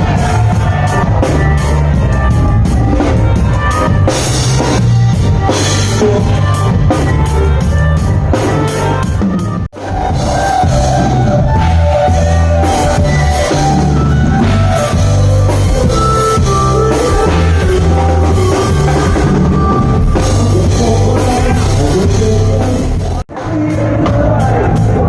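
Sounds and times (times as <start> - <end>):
bass line: 0.0 - 25.0
drum kit: 0.0 - 25.0
guitar: 0.0 - 25.0
person singing: 5.4 - 14.9, 16.4 - 25.0.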